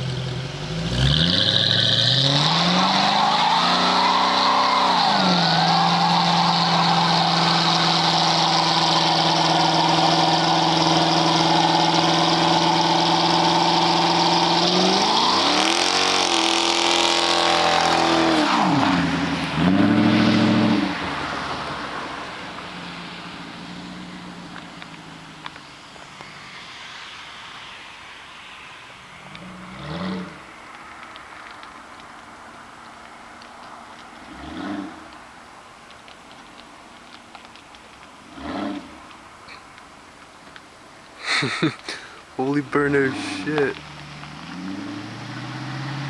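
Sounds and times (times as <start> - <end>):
car engine revving through exhaust: 0.0 - 21.5, 42.8 - 46.0.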